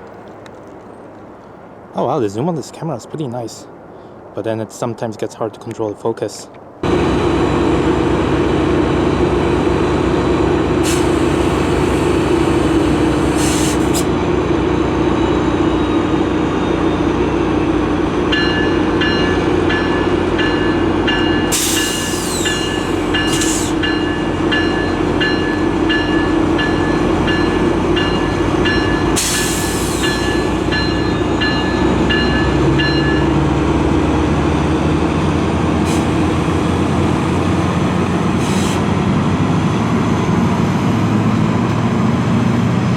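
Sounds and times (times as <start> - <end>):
diesel train rumbling: 6.6 - 42.9
short hisses or squeals: 13.3 - 14.1, 21.5 - 23.8.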